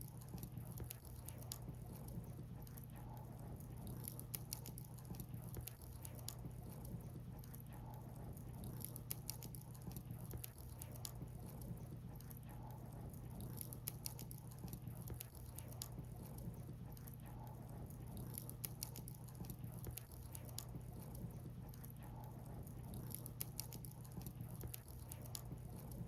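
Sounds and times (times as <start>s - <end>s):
firewood crackling and popping: 0.1s - 2.9s, 8.4s - 17.2s.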